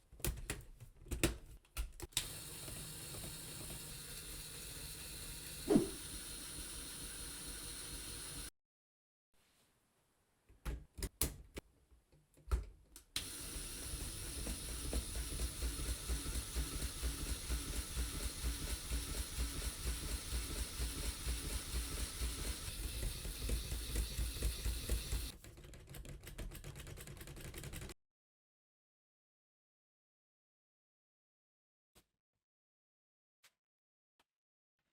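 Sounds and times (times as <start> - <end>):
rapid rattling of plastic gears: 2.1 - 8.5, 13.2 - 28.0.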